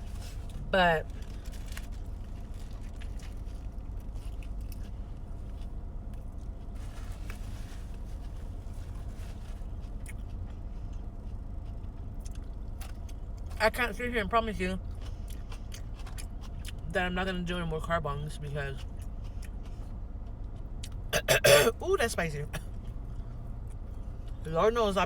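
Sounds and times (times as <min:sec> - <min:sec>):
steady low hum: 0:00.0 - 0:25.0
faint crunches and clicks: 0:01.1 - 0:08.5
chewing and biting: 0:01.2 - 0:06.8, 0:09.7 - 0:13.6, 0:14.9 - 0:16.8, 0:18.8 - 0:21.1.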